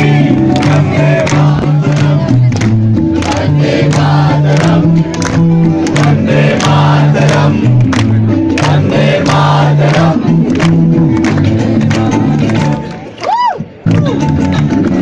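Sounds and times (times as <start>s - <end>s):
voices singing: 0.0s - 2.5s, 3.1s - 5.0s, 5.9s - 7.7s, 8.5s - 10.4s
bass guitar line: 0.0s - 13.0s
crowd noise: 0.0s - 15.0s.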